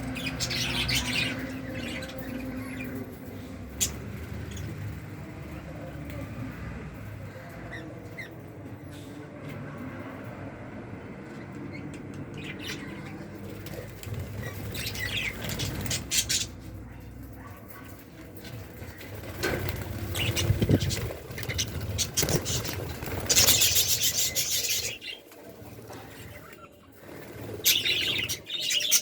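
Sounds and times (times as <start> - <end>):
budgies chirping: 0.0 - 4.9, 11.7 - 26.9, 27.5 - 29.0
rustling and fluttering: 17.6 - 28.4.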